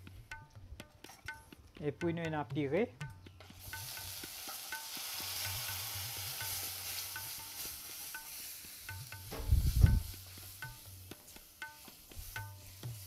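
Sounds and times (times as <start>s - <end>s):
puree sizzling in hot oil: 3.4s - 13.0s
low thump: 9.2s - 10.1s.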